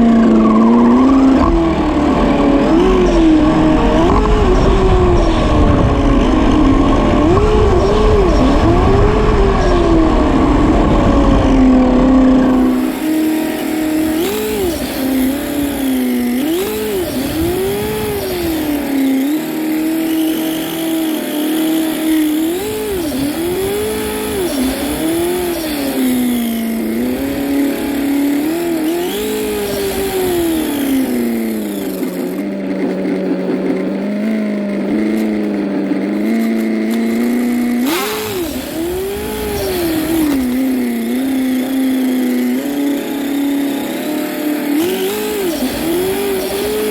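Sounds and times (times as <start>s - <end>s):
toy car motor whining: 0.0s - 46.9s.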